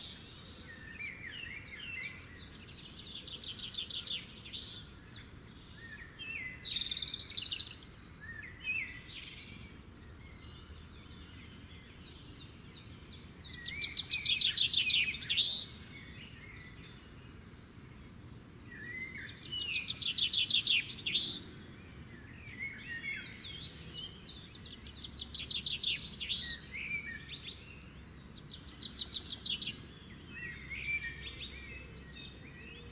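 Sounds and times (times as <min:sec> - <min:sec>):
songbird trills: 0:00.0 - 0:32.9.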